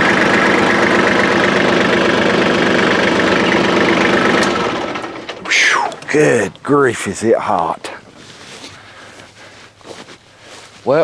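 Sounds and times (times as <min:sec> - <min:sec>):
tractor diesel engine running: 0:00.0 - 0:10.9.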